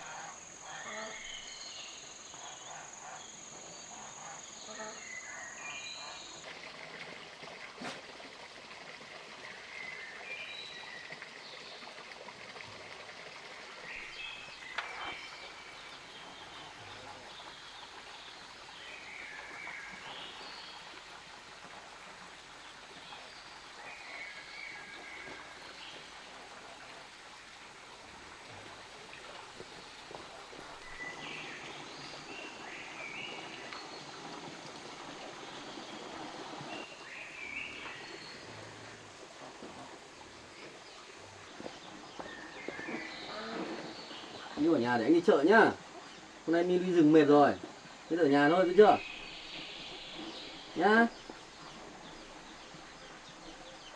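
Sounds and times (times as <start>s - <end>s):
bird chirps: 0.0s - 6.4s, 30.9s - 38.7s
high insect drone: 0.0s - 6.4s, 31.0s - 41.1s
rushing like running water: 0.0s - 53.9s.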